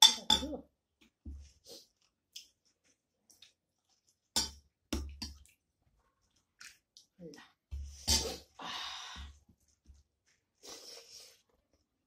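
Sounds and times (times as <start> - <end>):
person chewing: 1.7 - 4.3.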